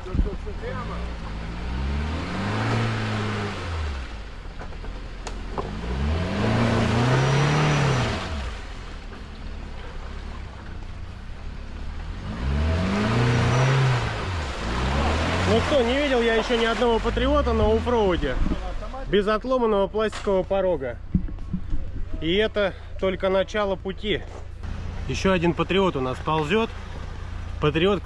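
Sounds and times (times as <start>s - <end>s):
suv engine revving hard: 0.6s - 4.3s, 5.4s - 8.9s, 11.8s - 18.5s.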